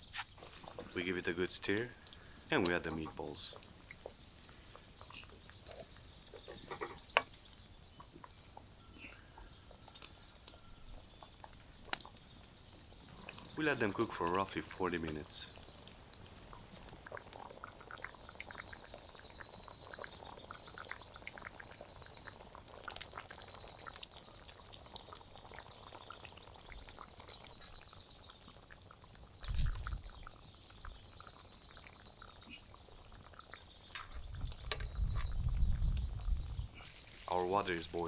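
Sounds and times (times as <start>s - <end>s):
sauce bubbling in a pan: 0.0s - 38.0s.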